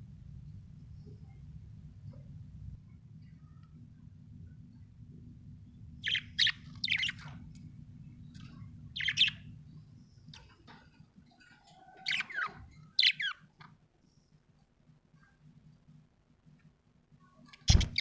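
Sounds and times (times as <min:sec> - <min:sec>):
low steady hum: 0:00.0 - 0:18.0
budgerigar chirping: 0:06.0 - 0:07.3, 0:09.0 - 0:09.4, 0:12.0 - 0:13.4.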